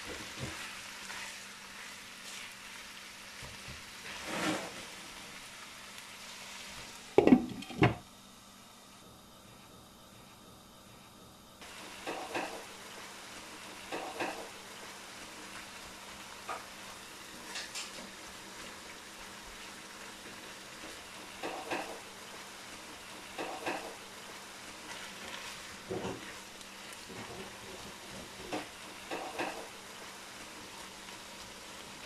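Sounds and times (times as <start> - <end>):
food sizzling in a wok: 0.0 - 8.8, 11.6 - 32.0
spatula stirring and scraping: 0.3 - 2.6, 4.0 - 4.9, 24.7 - 28.6.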